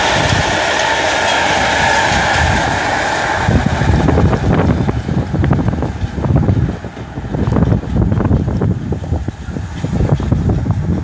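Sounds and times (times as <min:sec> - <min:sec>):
freight train wheels on rail: 0:00.0 - 0:11.0
wind on microphone: 0:00.0 - 0:11.0.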